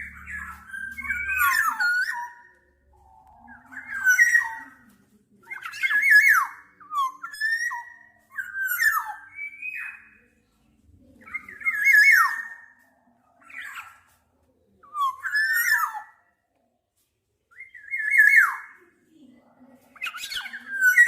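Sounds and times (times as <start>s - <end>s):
bird singing whistled phrases: 0.0s - 2.6s, 3.2s - 4.8s, 5.5s - 10.2s, 11.3s - 12.8s, 14.8s - 16.2s, 17.5s - 18.8s.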